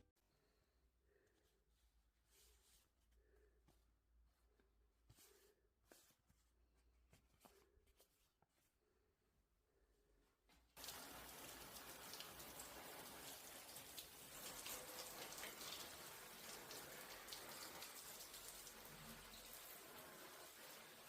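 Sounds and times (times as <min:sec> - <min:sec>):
patter of falling water drops: 0:10.8 - 0:21.0.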